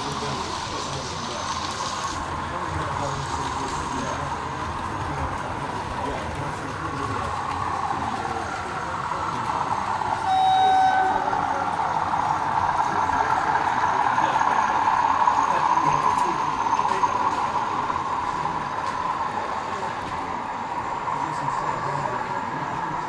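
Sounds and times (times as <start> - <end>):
model trains humming: 0.0 - 23.0
people chattering: 0.0 - 23.0
model train horn toot: 10.2 - 11.4.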